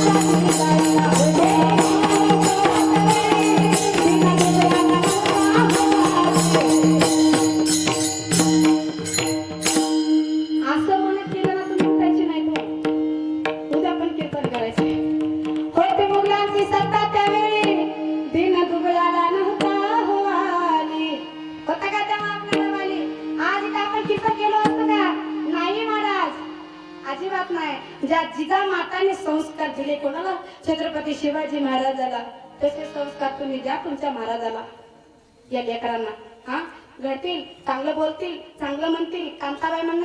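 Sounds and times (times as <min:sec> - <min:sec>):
wavering melody line: 0:00.0 - 0:11.2
bright jingling percussion: 0:00.0 - 0:13.4
tabla: 0:00.0 - 0:34.8.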